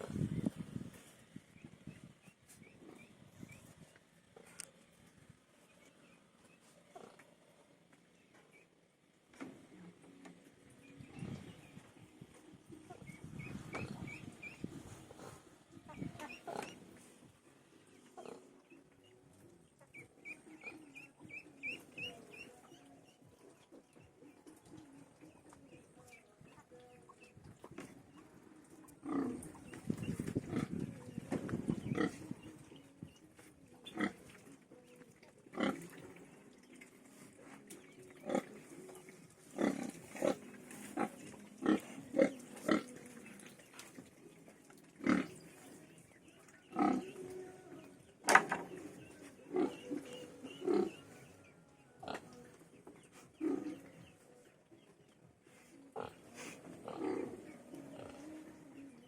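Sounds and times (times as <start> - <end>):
pigs grunting: 12.9 - 17.1, 18.0 - 18.8, 28.8 - 32.5, 33.8 - 34.4, 35.5 - 36.4, 37.3 - 43.2, 44.9 - 45.8, 46.6 - 47.2, 48.6 - 52.4, 53.0 - 54.1, 55.9 - 58.4.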